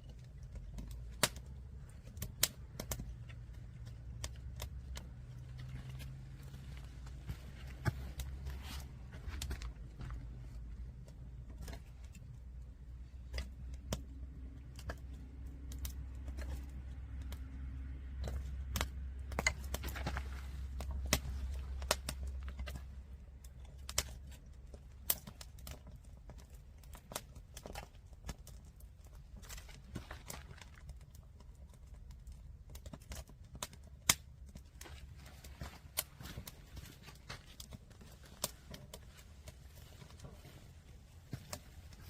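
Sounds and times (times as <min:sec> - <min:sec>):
low fire rumble: 0:00.0 - 0:42.0
wood fire crackling and popping: 0:00.0 - 0:42.0.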